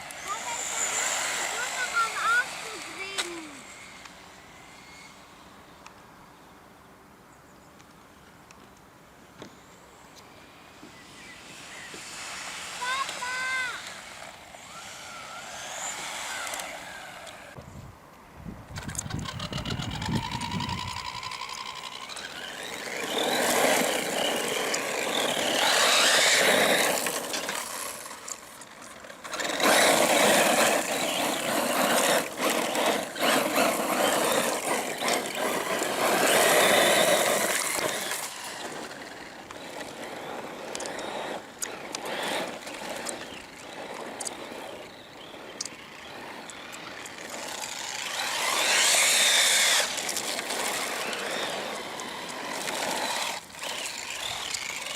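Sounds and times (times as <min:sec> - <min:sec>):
electric motor whine: 0:00.0 - 0:05.8, 0:11.0 - 0:17.6, 0:18.8 - 0:54.9
rc cars driving past: 0:00.0 - 0:06.6, 0:09.9 - 0:17.6, 0:18.7 - 0:54.9
tyre noise: 0:18.7 - 0:54.9.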